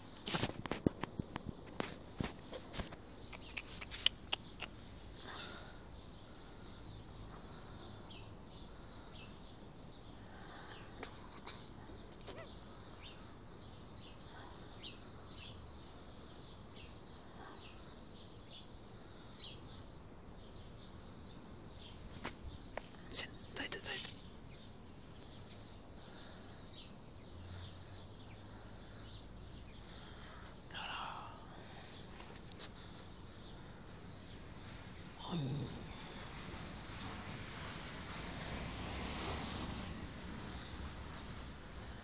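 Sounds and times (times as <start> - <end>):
small birds chirping: 0.0 - 42.0
sharp clicks: 2.8 - 4.8.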